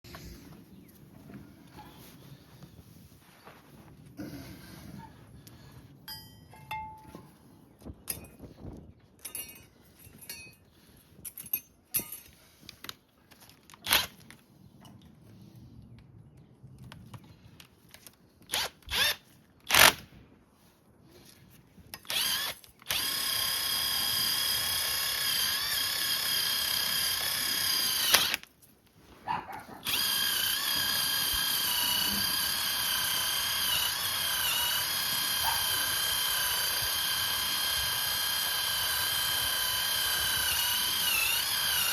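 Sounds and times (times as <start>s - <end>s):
power tool whining: 18.5s - 20.0s, 21.9s - 28.5s, 29.8s - 41.9s.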